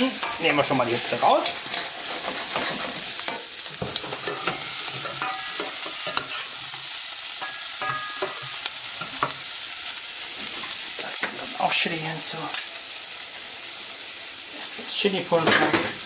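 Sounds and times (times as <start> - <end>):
onions and bacon sizzling in oil: 0.0 - 16.0
metal spatula scraping pan: 0.1 - 6.7.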